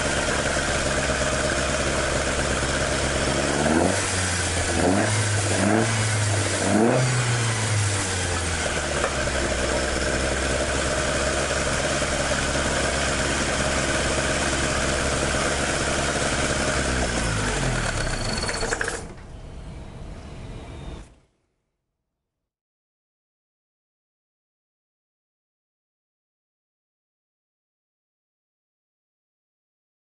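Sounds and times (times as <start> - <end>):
car engine idling: 0.0 - 19.0
valvetrain mechanical clatter: 17.7 - 19.3.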